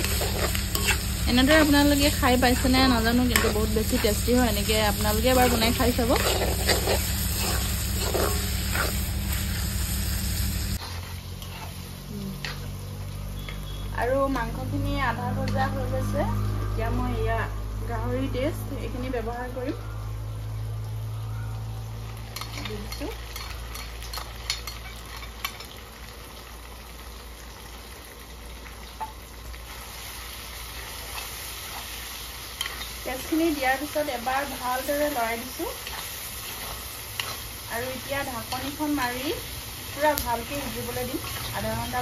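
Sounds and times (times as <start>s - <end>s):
spatula scraping a wok: 0.0s - 12.8s, 22.3s - 25.8s, 29.7s - 42.0s
meat sizzling in a wok: 0.0s - 16.0s, 17.2s - 42.0s.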